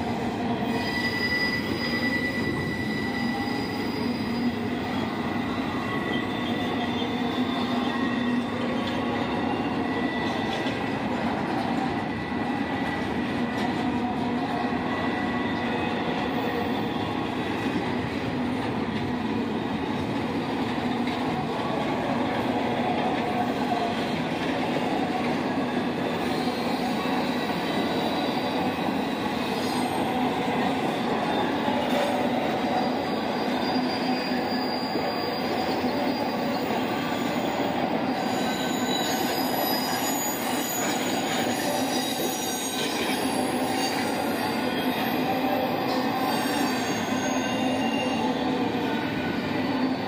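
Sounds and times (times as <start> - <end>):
high-pitched wheel squeals: 0.6 - 10.7, 26.0 - 50.0.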